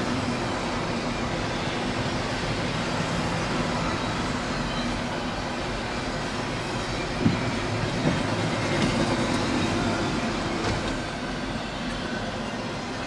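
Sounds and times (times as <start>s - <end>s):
train wheels rolling on rail: 0.0s - 13.0s.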